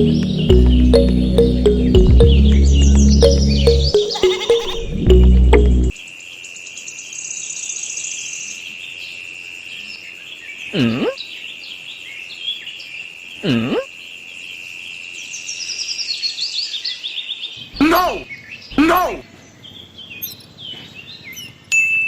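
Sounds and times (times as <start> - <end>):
swooping bird calls: 0.0 - 4.9
birds chirping: 0.0 - 5.9, 14.9 - 21.7
music: 0.0 - 5.9.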